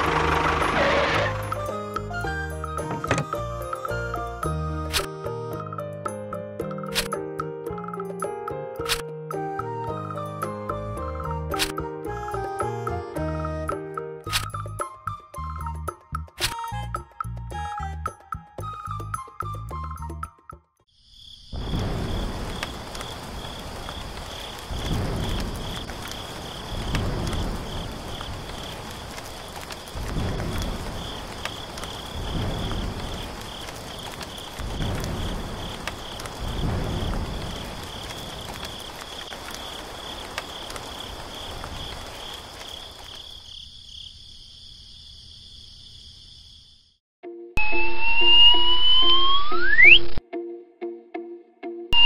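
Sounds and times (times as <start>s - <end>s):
rain falling: 0.0s - 5.0s, 21.5s - 43.7s
music: 0.0s - 20.9s, 47.2s - 52.0s
insects chirping: 20.9s - 47.0s.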